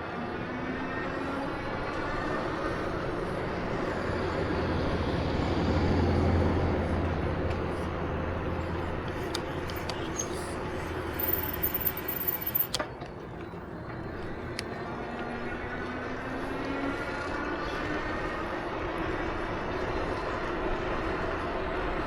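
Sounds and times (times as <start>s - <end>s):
vehicle running hum: 0.0s - 22.0s.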